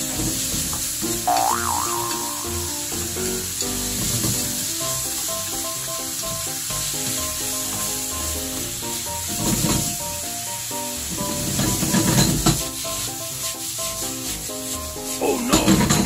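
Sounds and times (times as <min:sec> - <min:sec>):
background music: 0:00.0 - 0:16.0
chicken sizzling in oil: 0:00.0 - 0:16.0
spatula scraping pan: 0:11.2 - 0:16.0.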